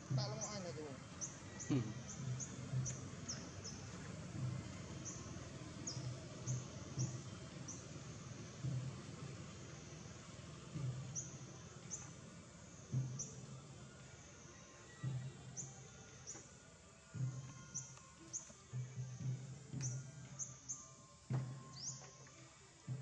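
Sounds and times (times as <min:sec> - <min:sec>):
birds chirping: 0:00.0 - 0:13.6, 0:17.2 - 0:18.6, 0:21.6 - 0:22.2.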